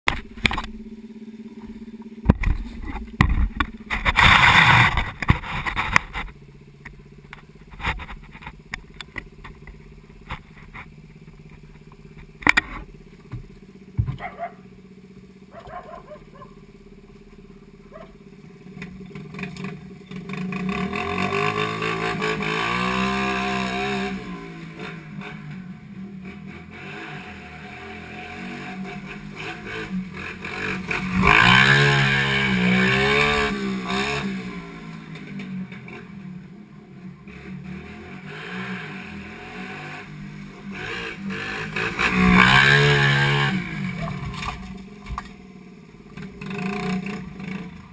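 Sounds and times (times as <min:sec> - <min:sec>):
motorbike engine running: 0:00.1 - 0:47.9
rattling and knocks: 0:07.3 - 0:14.5.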